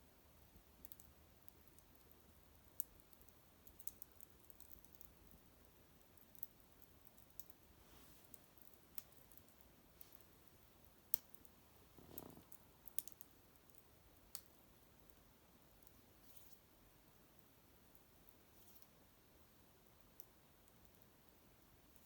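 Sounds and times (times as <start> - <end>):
low fire hiss: 0.0 - 22.0
twig fire crackling and popping: 0.8 - 14.6.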